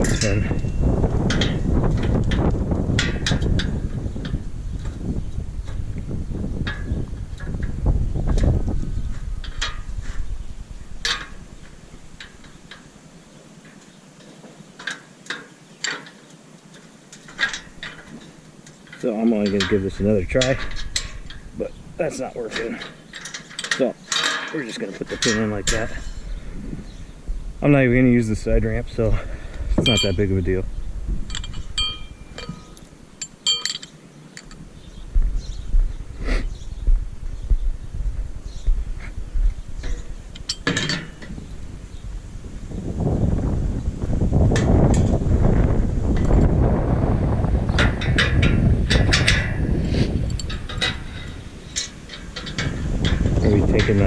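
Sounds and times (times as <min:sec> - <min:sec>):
metal pins clinking: 0:00.0 - 0:05.8, 0:06.6 - 0:26.4, 0:29.8 - 0:30.6, 0:31.2 - 0:34.7, 0:39.8 - 0:41.6, 0:47.7 - 0:54.0
wind rumbling on microphone: 0:00.0 - 0:14.8, 0:17.2 - 0:54.0
metal clinks and taps: 0:29.8 - 0:30.2, 0:31.3 - 0:34.6, 0:39.8 - 0:41.3, 0:50.2 - 0:54.0.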